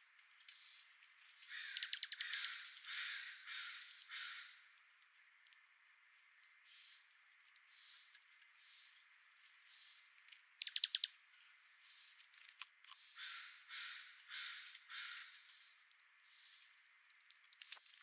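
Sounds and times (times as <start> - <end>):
corvid cawing: 1.4 - 4.7, 13.0 - 16.8.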